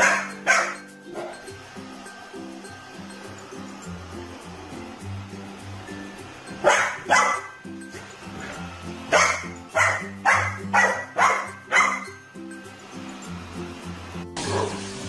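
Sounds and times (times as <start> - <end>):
puppy barking: 0.0 - 1.4, 6.6 - 7.6, 8.4 - 12.1, 14.4 - 14.8
background music: 0.0 - 15.0.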